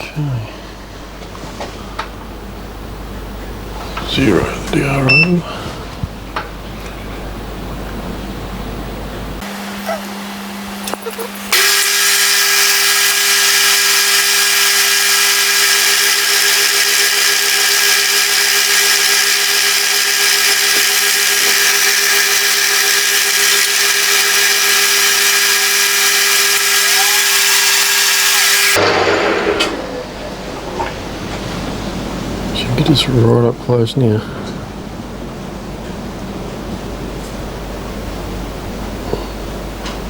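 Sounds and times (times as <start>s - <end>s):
milling machine cutting metal: 9.4s - 29.8s.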